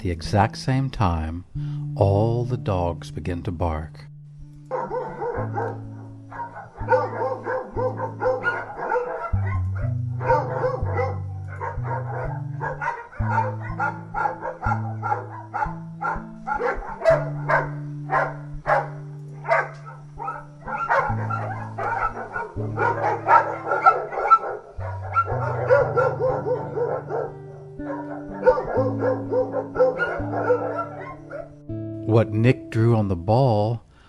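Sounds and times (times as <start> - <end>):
background music with bass line: 0.0 - 33.6
many dogs barking: 4.7 - 31.6.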